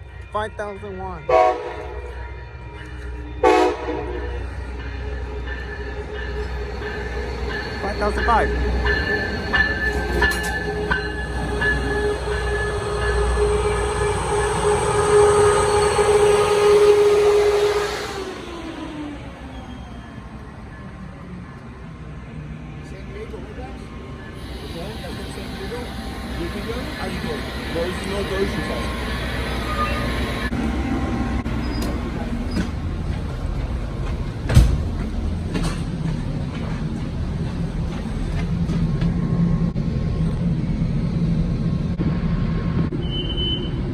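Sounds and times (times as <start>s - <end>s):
train rumbling on rails: 0.0s - 43.9s
train wheel clicks: 6.3s - 13.4s, 31.6s - 39.2s
steady tone: 6.3s - 20.0s, 24.4s - 32.4s.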